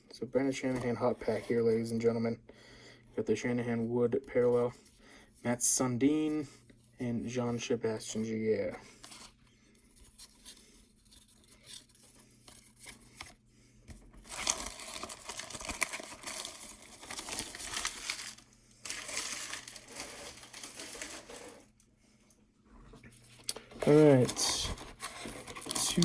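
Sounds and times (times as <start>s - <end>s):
plastic wrapper crinkling and tearing: 14.2s - 21.7s, 23.4s - 26.0s.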